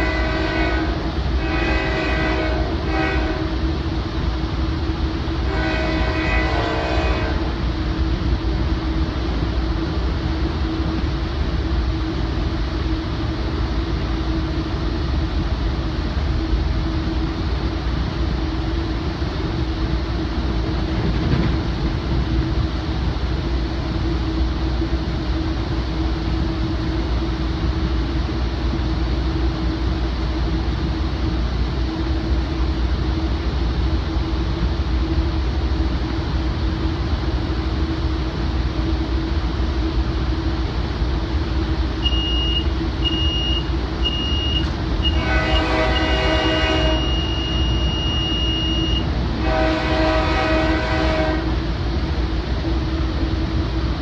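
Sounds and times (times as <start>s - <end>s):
locomotive air horn: 0.0s - 3.6s, 5.4s - 7.6s, 42.0s - 51.6s
train rumble and hum: 0.0s - 54.0s
alerter beeping: 47.0s - 49.1s.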